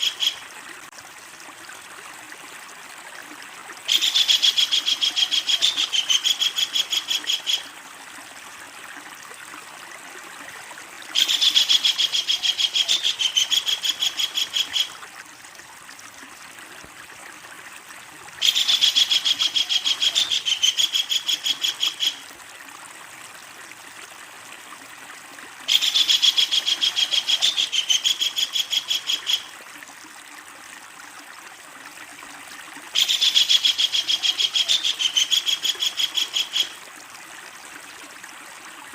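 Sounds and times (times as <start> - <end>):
kingfisher rattling call: 18.4 - 22.2.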